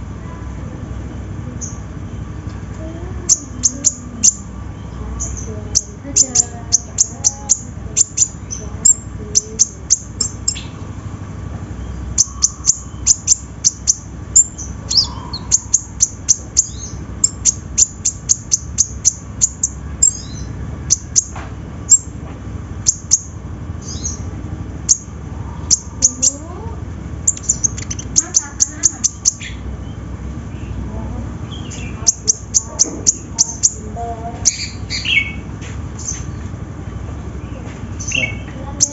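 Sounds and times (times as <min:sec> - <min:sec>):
sunbird calling high chips: 0:11.7 - 0:22.2, 0:22.8 - 0:26.6, 0:27.2 - 0:30.8.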